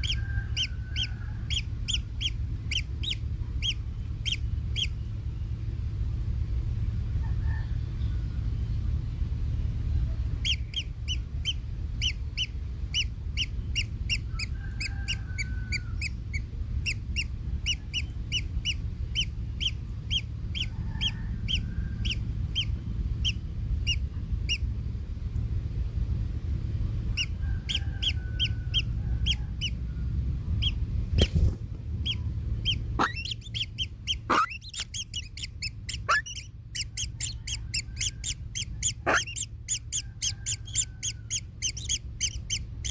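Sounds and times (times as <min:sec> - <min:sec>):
kingfisher calling: 0:00.0 - 0:05.0, 0:10.4 - 0:24.7, 0:27.1 - 0:29.9, 0:32.0 - 0:42.9
low rumble: 0:00.0 - 0:42.9.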